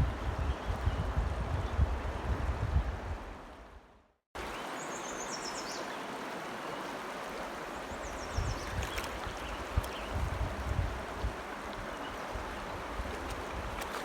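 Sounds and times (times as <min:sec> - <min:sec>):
flowing water rushing: 0:04.4 - 0:14.0.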